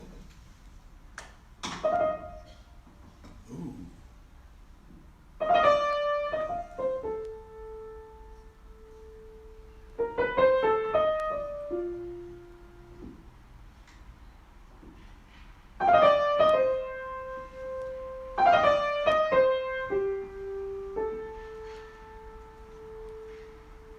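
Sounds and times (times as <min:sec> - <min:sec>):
solo piano: 0:01.7 - 0:02.8, 0:05.4 - 0:13.4, 0:15.8 - 0:23.9.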